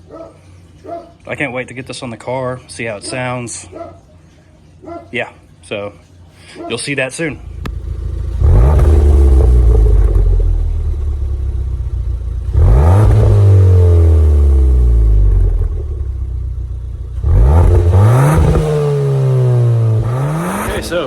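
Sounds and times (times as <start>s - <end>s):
car engine revving hard: 7.5s - 11.2s, 12.4s - 16.0s, 17.1s - 21.0s.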